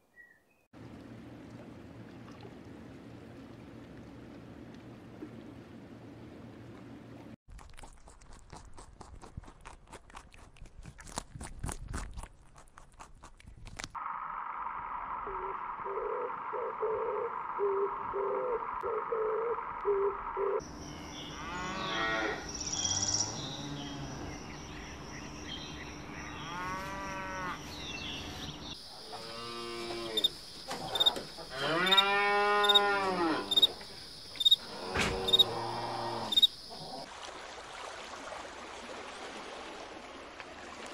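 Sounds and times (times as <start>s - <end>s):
cow mooing: 21.3s - 22.5s, 26.3s - 28.4s, 29.1s - 33.8s, 34.6s - 37.0s.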